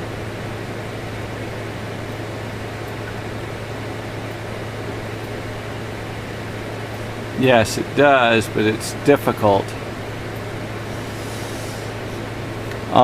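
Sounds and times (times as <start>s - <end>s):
low hum: 0.0s - 13.0s
steady hiss: 10.4s - 13.0s.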